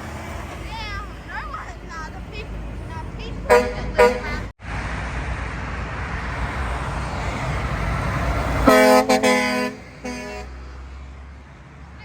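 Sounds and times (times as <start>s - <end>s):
truck passing: 0.0s - 12.0s
truck horn blasts: 3.5s - 4.5s, 8.6s - 10.8s.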